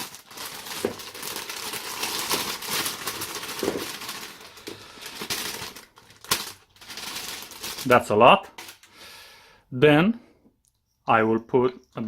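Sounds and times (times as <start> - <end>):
plastic bag crinkling: 0.0 - 8.9.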